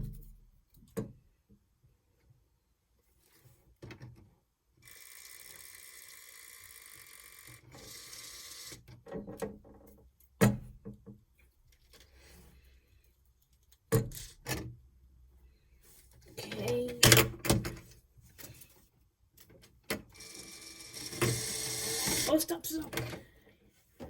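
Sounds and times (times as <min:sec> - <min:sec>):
small electric motor whirring: 0:04.9 - 0:08.8, 0:20.2 - 0:22.4.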